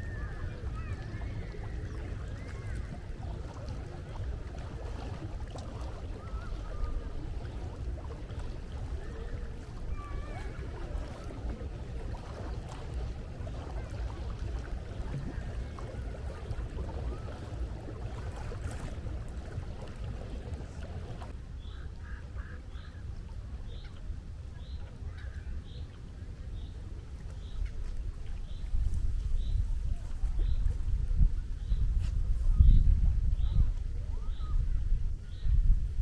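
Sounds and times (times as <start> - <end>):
faint bird calls: 0.0 - 4.3, 21.1 - 23.1, 33.4 - 35.6
sea surf washing: 0.0 - 21.4
wind rumbling on microphone: 0.0 - 36.0.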